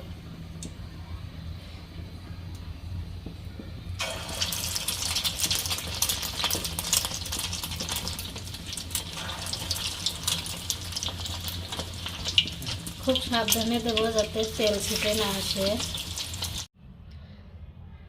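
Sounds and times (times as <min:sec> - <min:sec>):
food sizzling in hot oil: 0:04.0 - 0:16.7.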